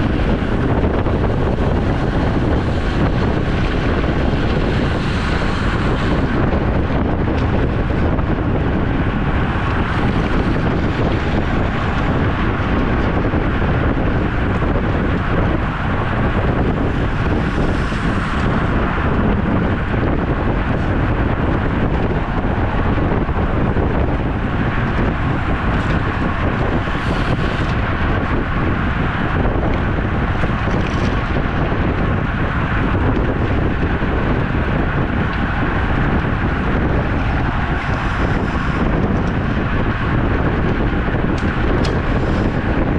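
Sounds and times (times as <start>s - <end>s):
wind rushing over microphone: 0.0s - 42.9s.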